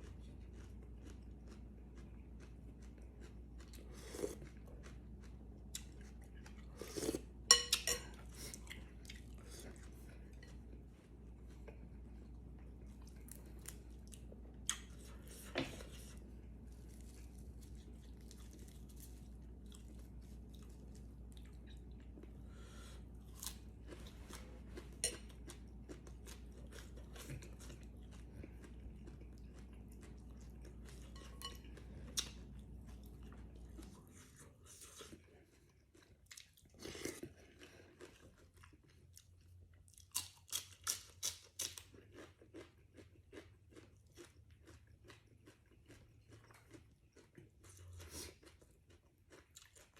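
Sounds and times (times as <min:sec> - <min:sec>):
steady low hum: 0:00.0 - 0:35.9
chewing and crunching noodles: 0:00.0 - 0:49.9.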